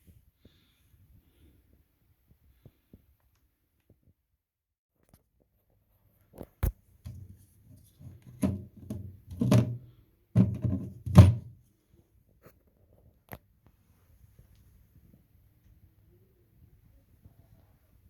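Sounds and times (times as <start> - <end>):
irregular thuds and knocks: 10.4 - 11.5.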